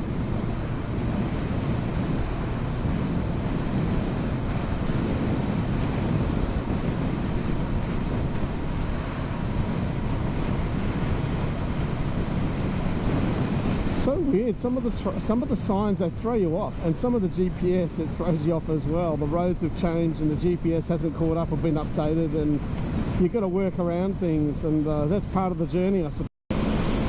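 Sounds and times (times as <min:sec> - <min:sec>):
motorcycle engine: 0:00.0 - 0:13.9
road noise: 0:00.0 - 0:27.0
wind noise on microphone: 0:00.0 - 0:27.0.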